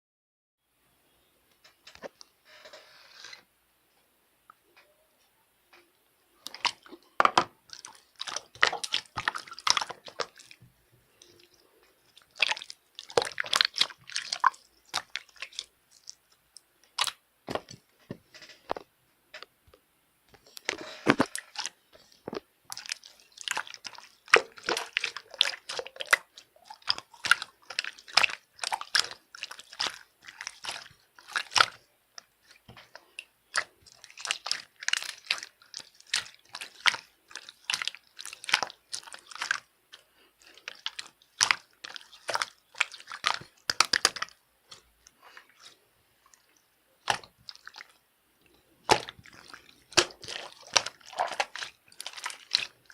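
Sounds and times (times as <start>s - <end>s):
slime squeezed by hand: 48.8s - 52.9s.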